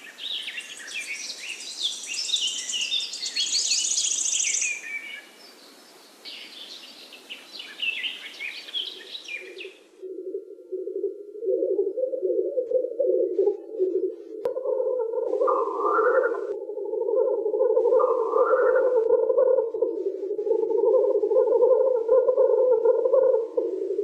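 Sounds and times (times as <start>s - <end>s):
songbirds chirping and trilling: 0.0s - 10.1s, 11.8s - 24.0s
steady background hiss: 0.0s - 11.5s, 15.1s - 21.8s.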